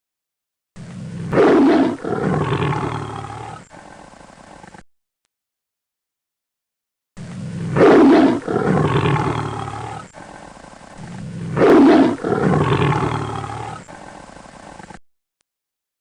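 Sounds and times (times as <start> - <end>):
lion roaring: 0.8 - 4.8, 7.2 - 15.0.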